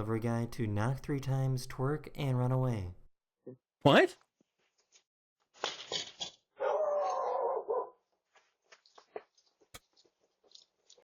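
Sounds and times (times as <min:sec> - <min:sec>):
dog whining: 0:06.6 - 0:07.9.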